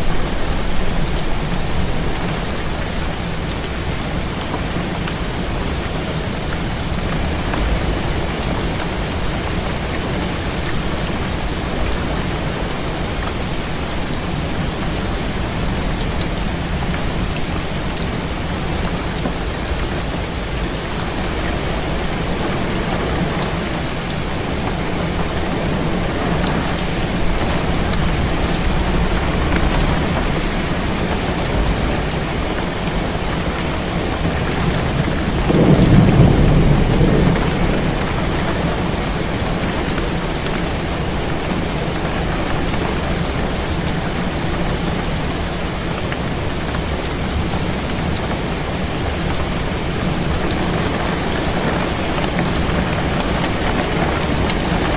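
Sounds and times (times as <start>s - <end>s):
low rumble of thunder: 0.0s - 42.4s
heavy rain on a window: 0.0s - 54.9s.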